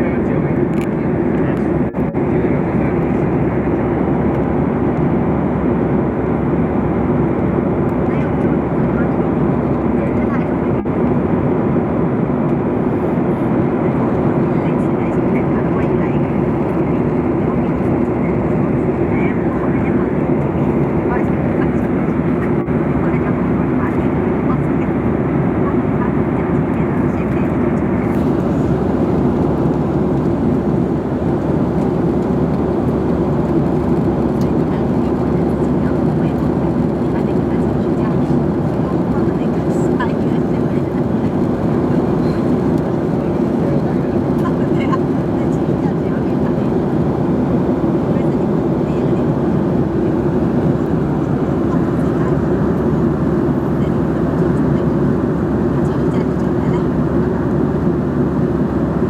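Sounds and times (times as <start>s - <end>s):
airliner cabin engine rush: 0.0s - 59.0s.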